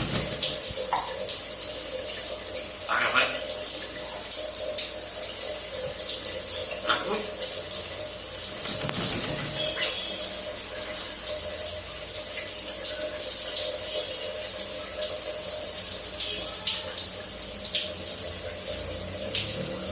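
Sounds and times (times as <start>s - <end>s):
tap water running and splashing: 0.0s - 19.9s.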